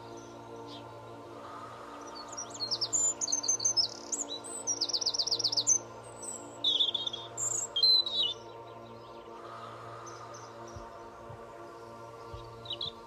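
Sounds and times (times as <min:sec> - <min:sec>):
soft sustained background tones: 0:00.0 - 0:13.0
songbird chirping and trilling: 0:00.0 - 0:13.0.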